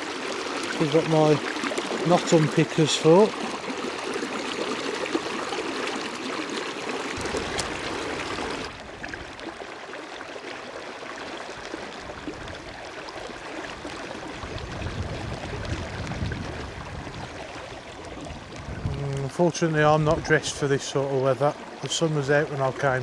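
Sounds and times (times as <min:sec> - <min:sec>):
river rushing over shallows: 0:00.0 - 0:23.0
wind rumbling on microphone: 0:07.2 - 0:09.6, 0:13.7 - 0:20.7.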